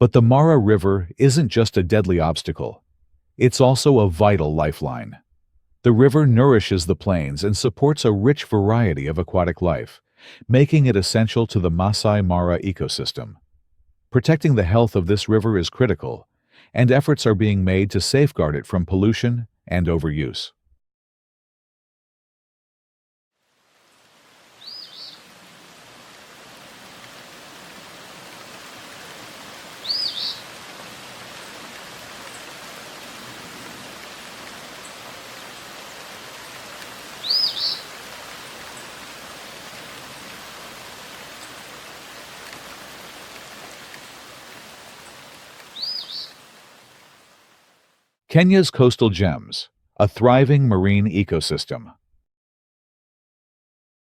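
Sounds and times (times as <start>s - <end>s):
steady outdoor hiss: 23.4s - 48.2s
bird calling high paired notes: 29.8s - 30.4s, 37.2s - 37.9s, 45.7s - 46.4s.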